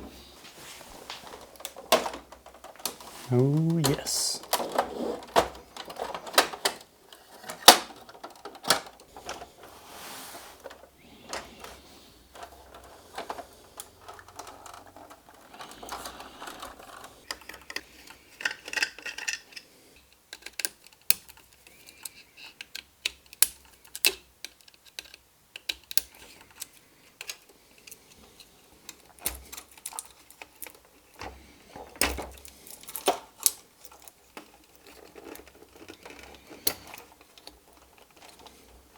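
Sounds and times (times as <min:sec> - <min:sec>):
small tools clicking and scraping: 0:10.5 - 0:38.9.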